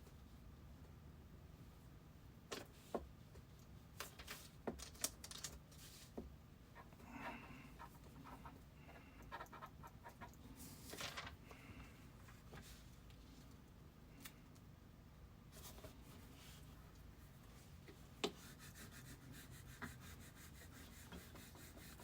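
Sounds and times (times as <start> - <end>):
breath noises near microphone: 6.9 - 9.3.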